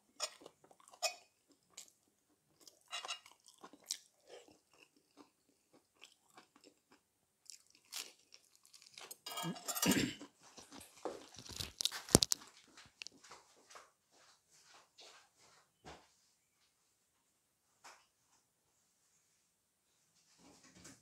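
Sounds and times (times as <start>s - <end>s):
crunching bite into lettuce: 11.2s - 12.4s.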